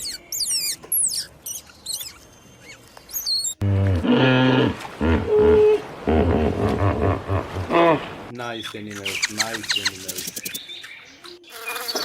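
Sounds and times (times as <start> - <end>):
high-pitched squeaky chirps: 0.0 - 3.6, 8.5 - 12.0.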